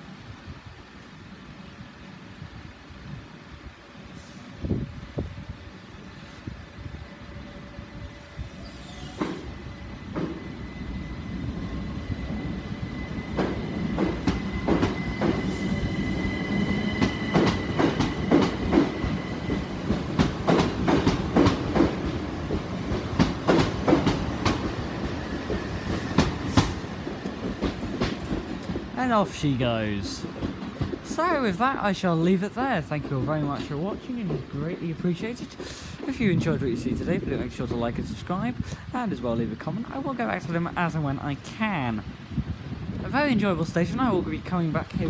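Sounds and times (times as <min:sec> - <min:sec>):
train wheels clicking over rail joints: 0:07.1 - 0:38.9.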